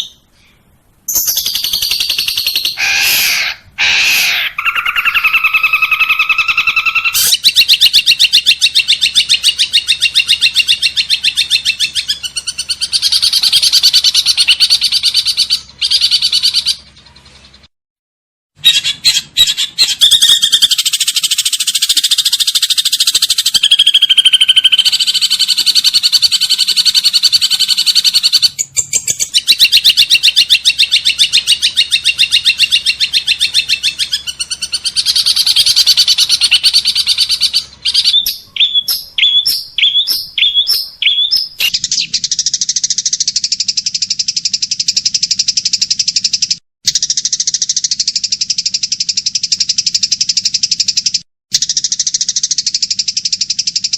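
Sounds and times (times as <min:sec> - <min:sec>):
short rising bird chirps: 0:00.0 - 0:17.7, 0:19.8 - 0:53.9
songbirds trilling and chirping: 0:00.0 - 0:17.7, 0:18.6 - 0:42.7
buzzing bird trill: 0:18.6 - 0:42.2.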